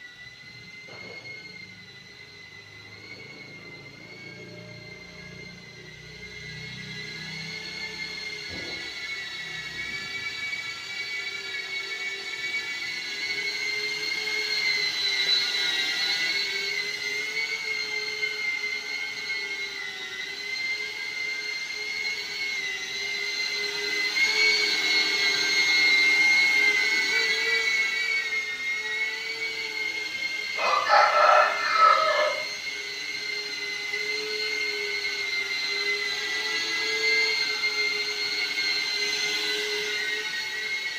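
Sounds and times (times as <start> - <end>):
drone propellers whining: 0.0 - 40.9
rooster crowing: 30.5 - 32.6.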